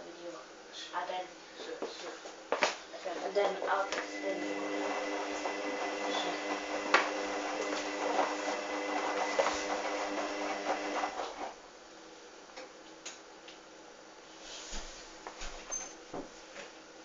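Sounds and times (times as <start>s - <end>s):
washing machine motor whine: 3.0s - 11.6s.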